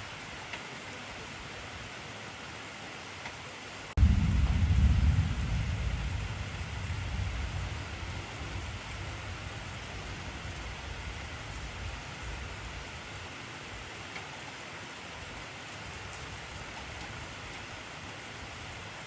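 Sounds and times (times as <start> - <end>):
heavy rain hissing: 3.9 - 19.0
thunder rumble: 4.0 - 13.2.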